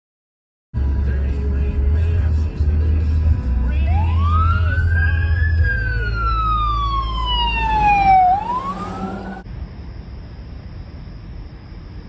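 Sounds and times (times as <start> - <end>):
emergency vehicle siren wailing: 3.7 - 9.4.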